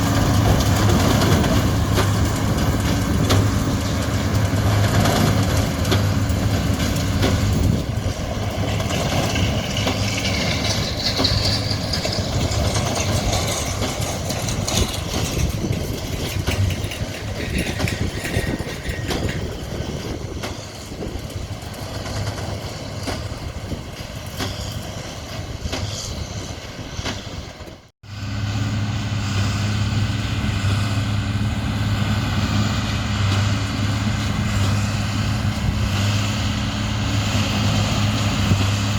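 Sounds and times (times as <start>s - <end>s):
diesel engine humming: 0.0s - 27.0s, 28.0s - 38.9s
mechanical rattle: 0.6s - 23.4s.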